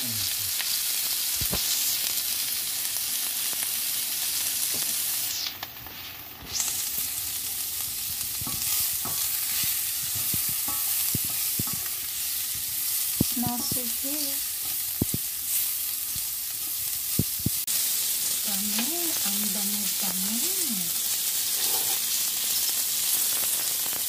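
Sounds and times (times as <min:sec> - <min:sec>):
vegetables sizzling in a pan: 0:00.0 - 0:24.0
wooden spoon scraping a pan: 0:08.0 - 0:15.7, 0:21.5 - 0:22.2.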